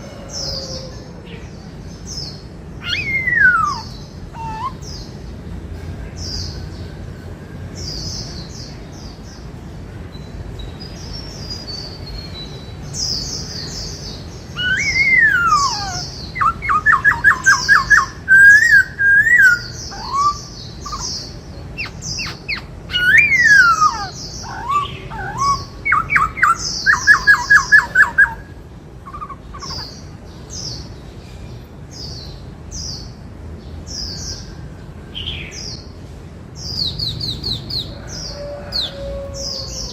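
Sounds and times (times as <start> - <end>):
bird whistled song: 2.8 - 5.1, 14.6 - 30.0.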